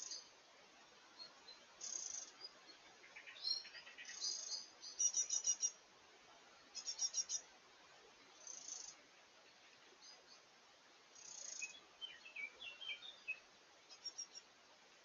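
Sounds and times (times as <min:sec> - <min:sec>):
birds chirping: 0:00.0 - 0:00.4, 0:01.0 - 0:05.8, 0:06.6 - 0:07.5, 0:08.3 - 0:10.5, 0:11.1 - 0:14.5
faint forest background hiss: 0:00.0 - 0:15.0
bird trills: 0:03.4 - 0:05.8, 0:06.8 - 0:07.5, 0:11.2 - 0:14.5.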